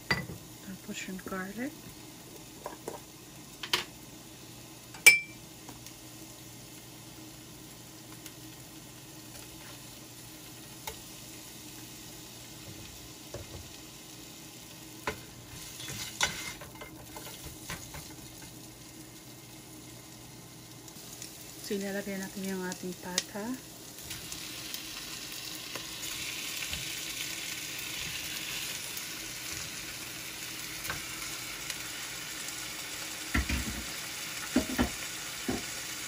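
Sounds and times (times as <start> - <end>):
onion sizzling in oil: 0.0 - 36.0
sharp ringing clink: 5.0 - 5.4
spatula scraping a pot: 15.5 - 17.4
knocks on a pot: 34.6 - 35.7.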